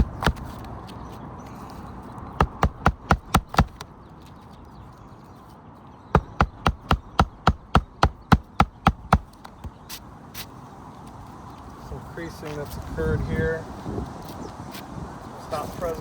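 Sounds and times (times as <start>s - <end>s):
hammer driving nails into shingles: 0.0s - 0.6s, 2.4s - 3.9s, 6.2s - 9.7s.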